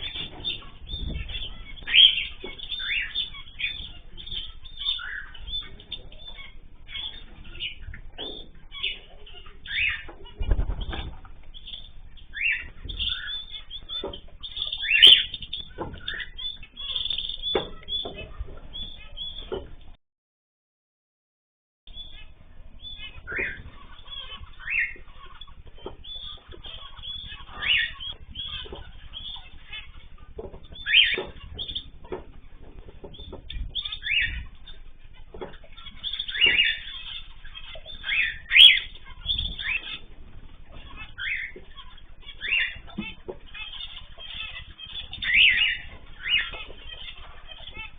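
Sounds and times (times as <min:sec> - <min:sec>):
cage birds chirping: 0:00.0 - 0:20.0, 0:21.9 - 0:47.9
low background hum: 0:00.0 - 0:20.0, 0:21.9 - 0:47.9
wing flaps: 0:10.1 - 0:12.1.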